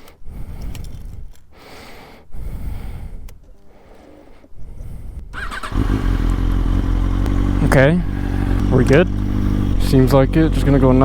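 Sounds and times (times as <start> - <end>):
heavy rhythmic breathing: 9.2 - 9.8.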